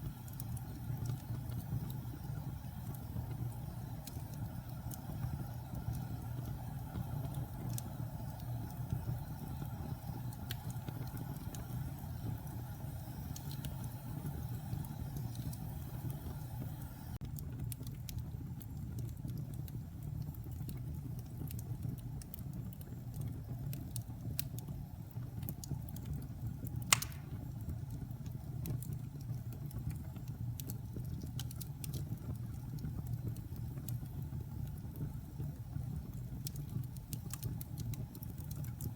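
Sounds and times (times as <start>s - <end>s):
fire flames rumbling: 0.0s - 38.9s
wood fire crackles: 0.0s - 38.9s
fire pop: 26.7s - 27.8s.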